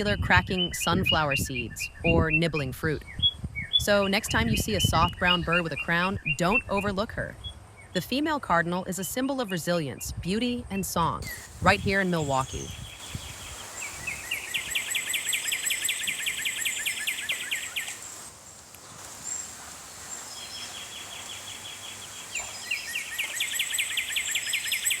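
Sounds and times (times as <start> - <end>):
high bird chirps: 11.2 - 18.3, 18.9 - 25.0
songbird trilling: 11.2 - 25.0.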